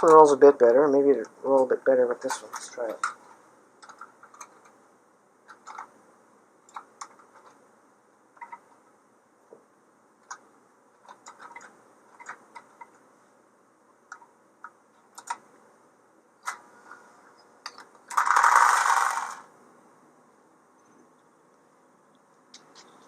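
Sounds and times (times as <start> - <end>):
toy train cars clattering: 2.2 - 4.7, 17.7 - 19.5.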